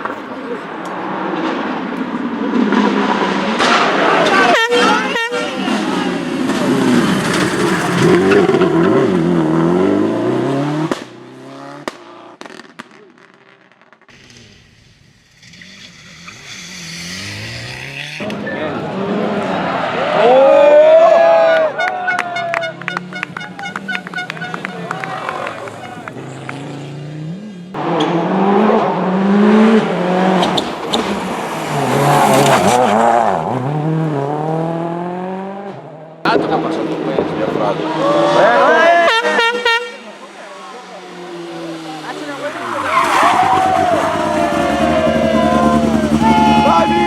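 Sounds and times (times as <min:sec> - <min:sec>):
rally car engine at high revs: 0:00.5 - 0:12.8, 0:15.4 - 0:20.6, 0:22.8 - 0:39.4, 0:40.0 - 0:47.0.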